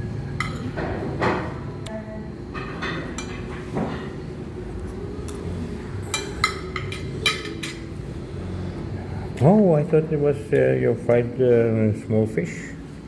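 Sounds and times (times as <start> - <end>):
low background hum: 0.0 - 13.0
cutlery and dishes clinking: 0.4 - 1.0, 2.5 - 4.2, 6.0 - 7.9.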